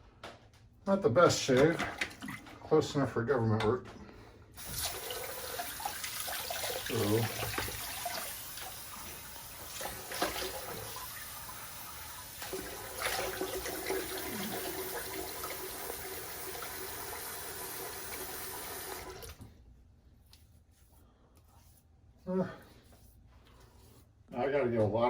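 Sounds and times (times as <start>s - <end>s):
sink tap running with splashing: 4.6s - 19.4s.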